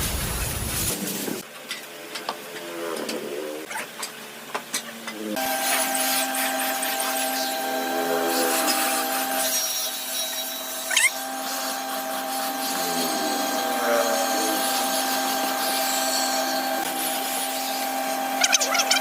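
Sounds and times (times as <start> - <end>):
rotary tool whining: 5.1 - 19.0.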